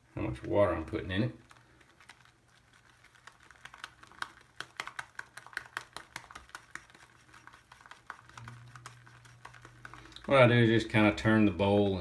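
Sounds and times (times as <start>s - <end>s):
shaving brush whipping lather: 2.0s - 11.0s.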